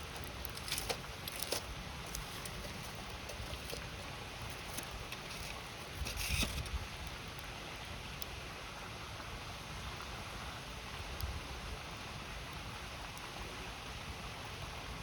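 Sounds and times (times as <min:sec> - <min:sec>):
fire popping: 0:00.0 - 0:07.5
wood fire crackling: 0:00.0 - 0:07.5
river flowing: 0:00.0 - 0:11.0.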